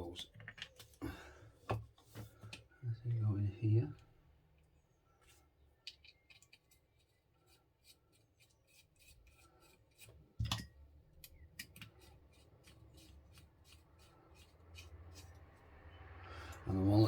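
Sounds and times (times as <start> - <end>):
small clicks and scrapes of parts: 0.2 - 1.0, 5.2 - 15.5.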